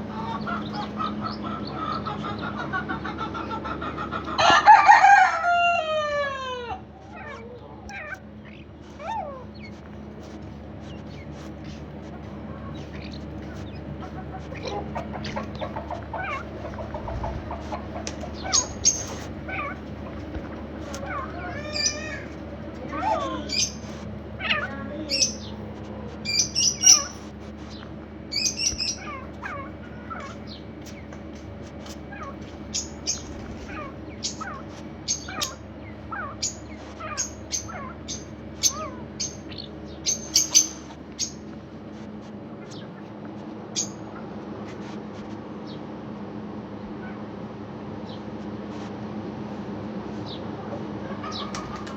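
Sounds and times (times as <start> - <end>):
animal and bird calls: 0.0 - 44.4, 45.6 - 48.6, 50.2 - 51.9
steady low hum: 0.0 - 51.9
loud high-pitched calls: 18.4 - 19.8, 21.0 - 25.6, 26.2 - 27.3, 28.3 - 30.6, 32.1 - 41.4.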